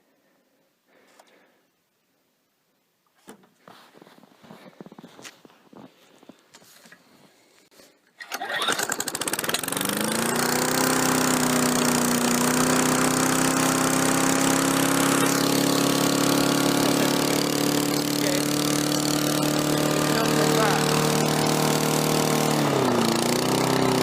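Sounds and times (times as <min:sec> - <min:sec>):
lawn mower engine starting and running: 0:08.0 - 0:24.0.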